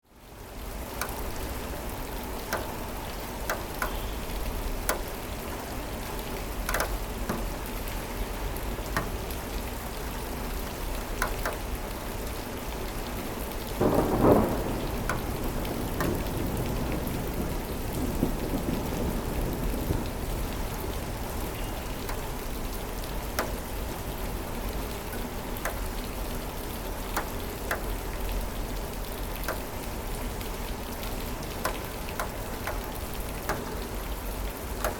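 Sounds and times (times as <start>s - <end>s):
steady rain: 0.0s - 34.9s
sharp drips: 0.8s - 12.3s, 20.5s - 34.9s
thunder rumbling: 13.8s - 21.6s.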